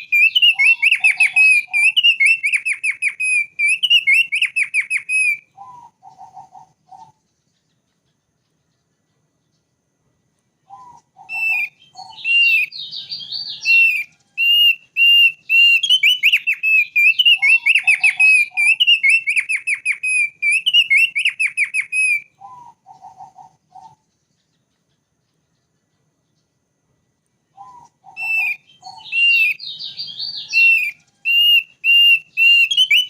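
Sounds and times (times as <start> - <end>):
white-eye whistling song: 0.0 - 7.2, 10.6 - 24.0, 27.5 - 33.0.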